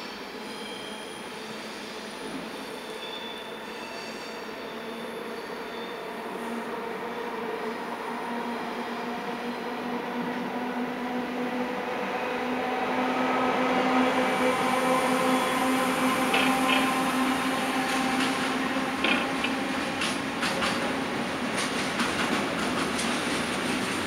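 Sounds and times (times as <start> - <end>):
wheels clicking over rail joints: 19.0 - 20.9.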